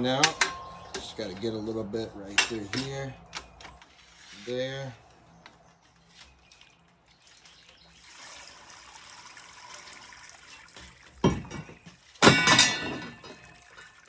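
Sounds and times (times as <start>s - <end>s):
loud metallic clatters: 0.0s - 1.6s, 11.2s - 13.5s
water streaming off basket: 6.5s - 14.0s.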